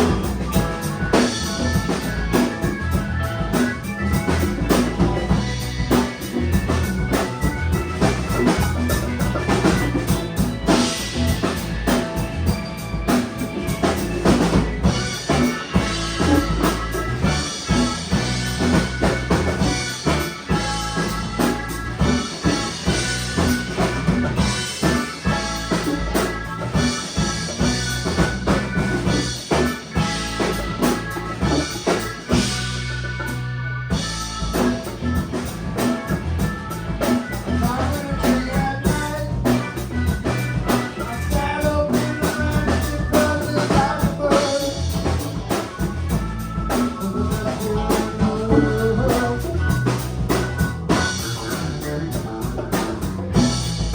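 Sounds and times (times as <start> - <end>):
band playing: 0.0 - 53.9
drum kit beat: 0.0 - 53.9.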